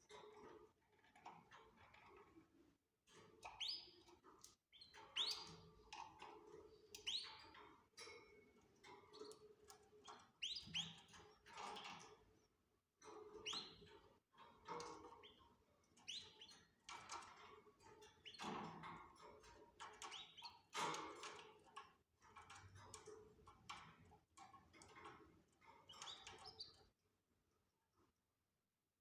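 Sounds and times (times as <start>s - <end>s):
canaries chirping: 3.4s - 4.1s, 4.7s - 5.6s, 6.9s - 7.8s, 8.9s - 12.0s, 13.2s - 14.0s, 14.7s - 18.7s, 19.4s - 21.0s, 25.7s - 26.9s.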